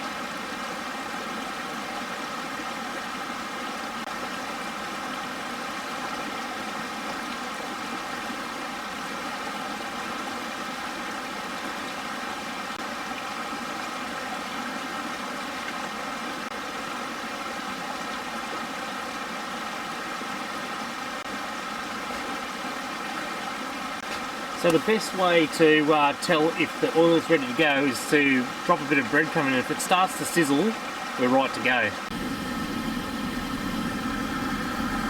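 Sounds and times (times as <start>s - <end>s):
steady mechanical hum: 23.9s - 35.0s.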